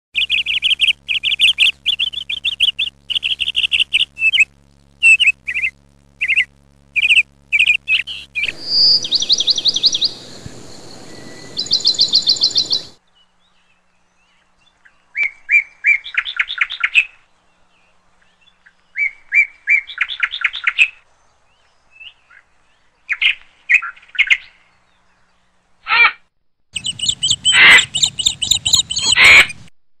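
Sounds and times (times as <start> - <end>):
small birds trilling: 0.2 - 20.9, 26.8 - 29.6
low rumbling noise: 0.5 - 13.0.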